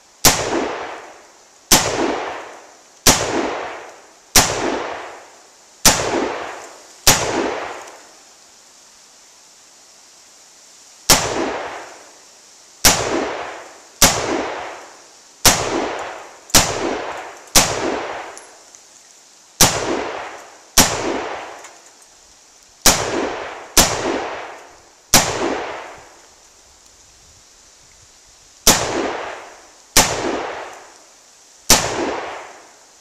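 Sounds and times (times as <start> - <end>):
rifle shots with echo: 0.2 - 5.2, 5.8 - 7.9, 11.1 - 12.0, 12.8 - 18.6, 19.6 - 21.6, 22.8 - 26.1, 28.6 - 30.9, 31.7 - 32.7.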